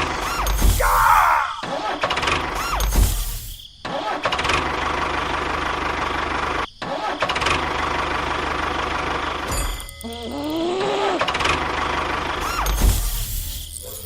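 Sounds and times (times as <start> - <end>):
engine chugging: 4.4 - 10.0, 10.8 - 12.8.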